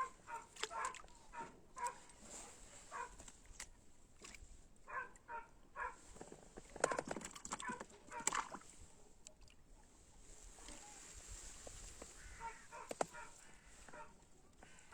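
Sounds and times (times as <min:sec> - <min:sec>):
birds calling: 0:12.0 - 0:14.9.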